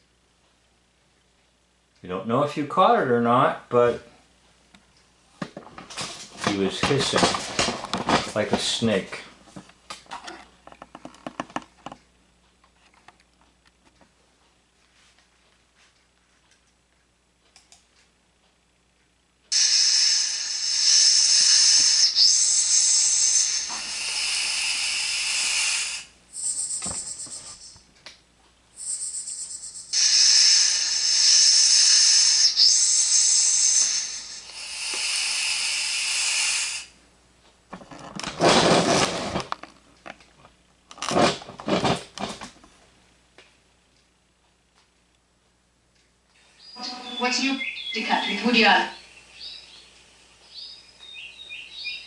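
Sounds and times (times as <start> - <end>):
man hissing through teeth: 19.5 - 26.7, 28.8 - 37.0.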